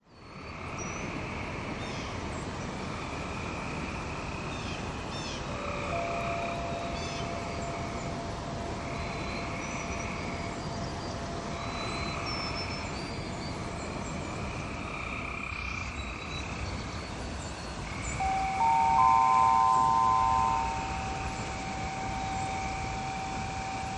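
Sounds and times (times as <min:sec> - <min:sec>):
soft ringing tone: 0:05.5 - 0:08.8, 0:18.1 - 0:23.9.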